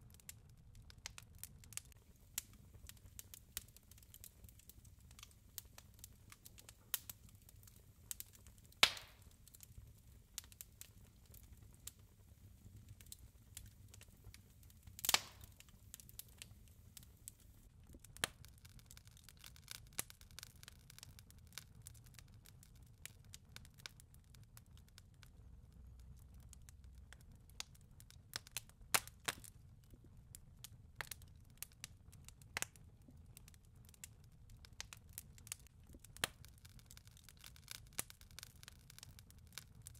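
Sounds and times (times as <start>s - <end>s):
wood fire crackling: 0.0s - 39.9s
loud fire pops: 1.8s - 9.7s, 12.9s - 17.1s.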